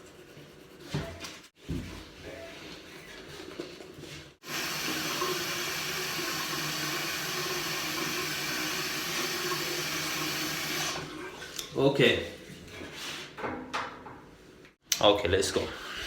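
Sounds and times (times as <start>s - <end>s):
tap water running into sink: 4.4s - 11.6s.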